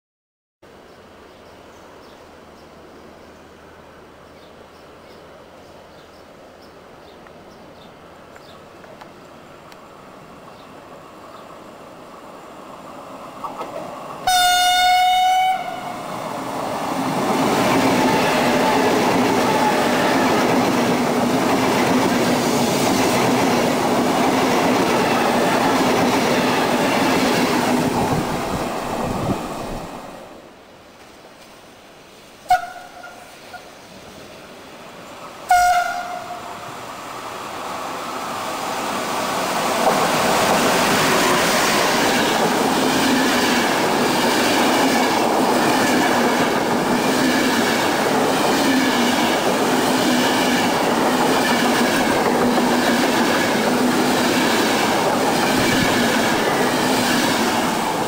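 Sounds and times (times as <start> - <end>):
train rolling past: 8.7 - 58.0
train horn blast: 14.2 - 16.0, 32.5 - 33.3, 35.5 - 36.5
train coaches clattering: 16.0 - 29.8, 38.7 - 58.0.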